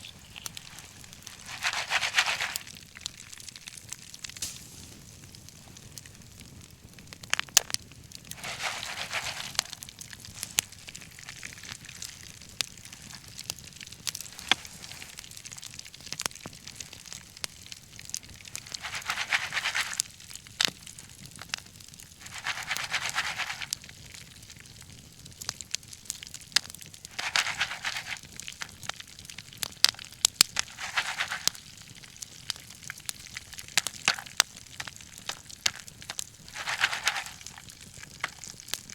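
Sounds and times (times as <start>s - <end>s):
bonfire crackling: 0.0s - 38.9s
burning logs popping: 0.0s - 38.9s
soft rushing hiss: 4.4s - 5.1s.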